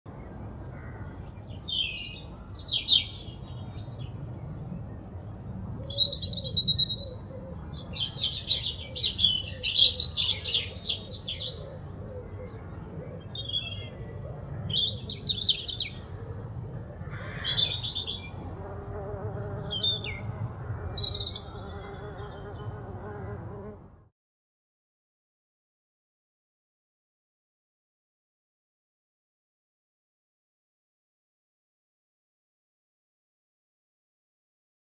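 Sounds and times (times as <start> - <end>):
songbirds singing: 0.1 - 23.8.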